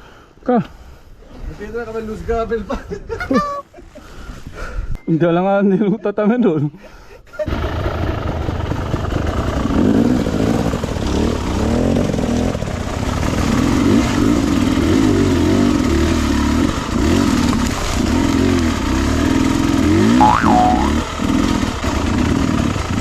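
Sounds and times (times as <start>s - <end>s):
dirt bike engine revving: 9.3s - 23.0s.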